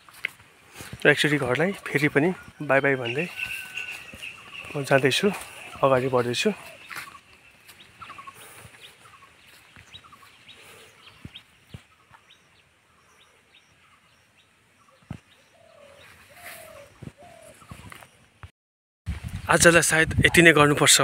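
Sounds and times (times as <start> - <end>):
bird clucking notes: 1.4 - 11.4
faint high bird chirps: 1.7 - 18.2.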